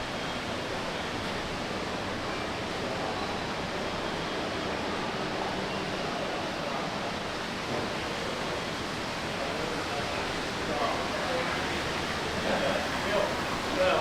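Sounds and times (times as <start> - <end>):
crowd hubbub: 9.3 - 14.0.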